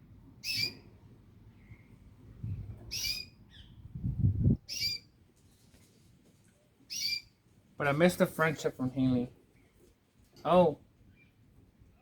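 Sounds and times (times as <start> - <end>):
canary chirping: 0.4 - 1.0, 2.9 - 3.8, 4.7 - 5.1, 6.9 - 7.4.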